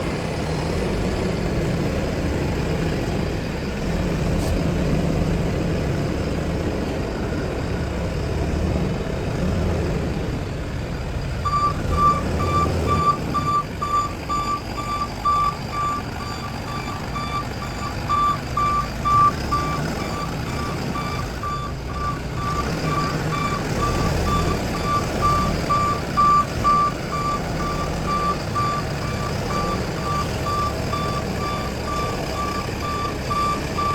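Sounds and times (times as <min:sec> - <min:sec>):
backhoe engine running: 0:00.0 - 0:33.9
reversing alarm beeping: 0:11.4 - 0:33.9.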